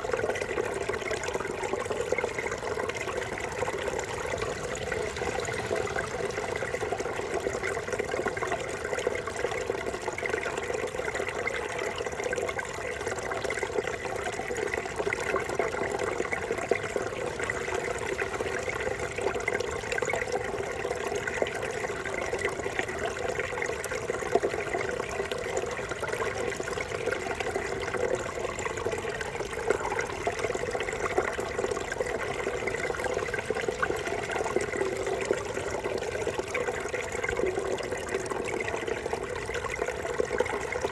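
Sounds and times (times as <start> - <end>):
brook babbling: 0.0 - 40.9.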